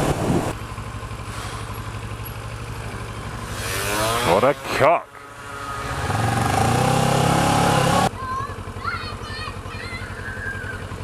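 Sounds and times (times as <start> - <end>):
motorcycle engine accelerating: 0.0 - 8.8, 9.6 - 11.0.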